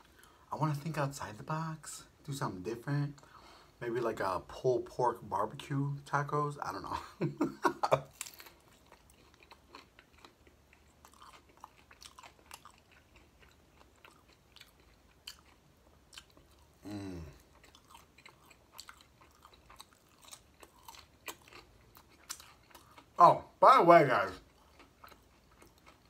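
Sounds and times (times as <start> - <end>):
chewing crispy taco shell: 7.4 - 23.2, 24.2 - 26.0.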